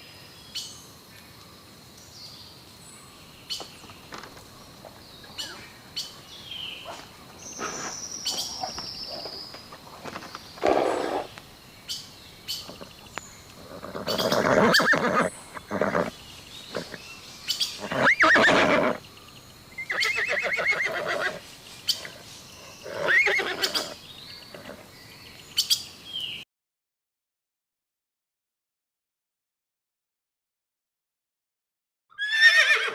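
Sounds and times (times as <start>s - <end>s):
horse neighing: 13.6s - 17.0s, 17.8s - 19.0s, 19.8s - 22.2s, 22.8s - 24.9s, 32.2s - 32.9s.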